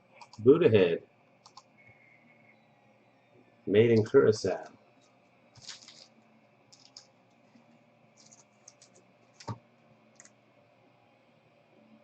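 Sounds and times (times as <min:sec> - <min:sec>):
trading cards clicking and rustling: 0:05.6 - 0:06.1, 0:06.7 - 0:07.1, 0:08.2 - 0:09.6.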